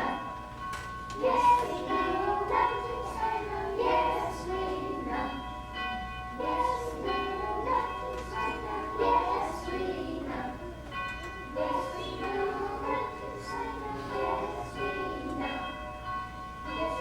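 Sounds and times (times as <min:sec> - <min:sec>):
children's choir singing: 0:00.0 - 0:00.5, 0:01.1 - 0:17.0
steady high tone: 0:00.0 - 0:17.0.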